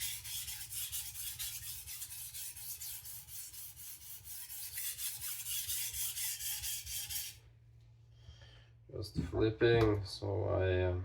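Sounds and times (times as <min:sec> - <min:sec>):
knife scraping on whetstone: 0:00.0 - 0:07.4.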